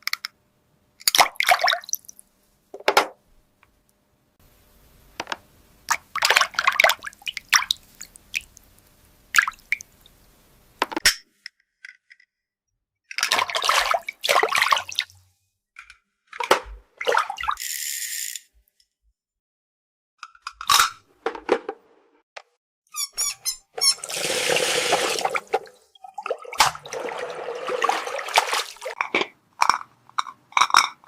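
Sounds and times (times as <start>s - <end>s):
water splashing and dripping: 5.9s - 10.1s, 13.2s - 15.2s, 24.0s - 29.0s.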